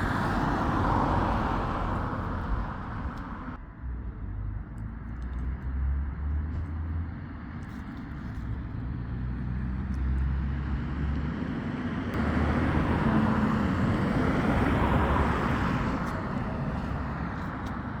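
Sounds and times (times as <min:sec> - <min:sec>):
vehicle passing close by: 0:00.0 - 0:03.6, 0:09.0 - 0:18.0
low engine hum: 0:00.0 - 0:18.0.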